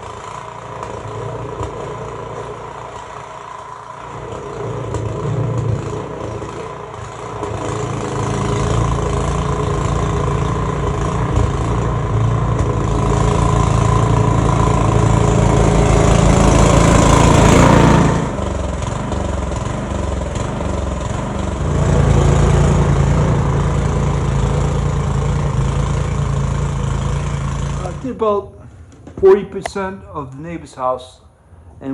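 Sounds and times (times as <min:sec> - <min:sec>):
snowblower engine running: 0:00.0 - 0:28.9
broad rushing noise: 0:03.6 - 0:18.8, 0:20.9 - 0:28.4.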